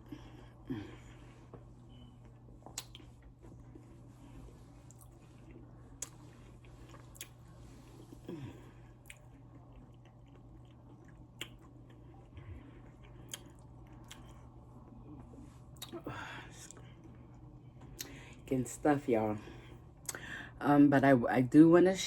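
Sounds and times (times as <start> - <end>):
person chewing fried chicken: 2.2 - 16.0.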